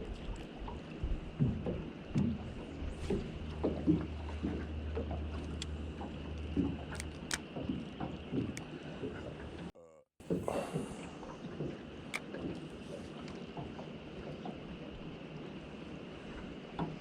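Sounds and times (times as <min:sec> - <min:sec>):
wind rumble on microphone: 0:00.0 - 0:06.8
waves slapping against boat hull: 0:00.0 - 0:09.7, 0:10.3 - 0:17.0.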